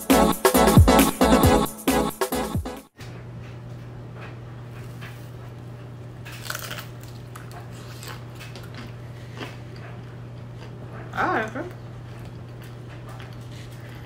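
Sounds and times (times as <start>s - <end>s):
people chewing toast: 5.8s - 14.0s.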